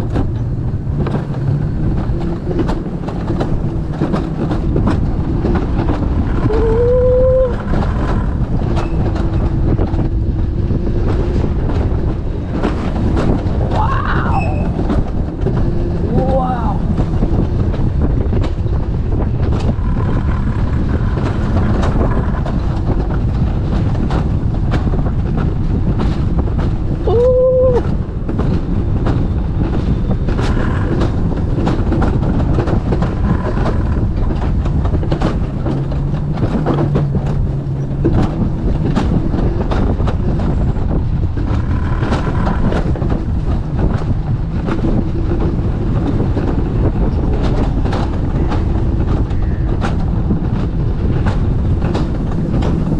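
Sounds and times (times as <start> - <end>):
sled rumbling on metal rail: 0.0 - 52.9.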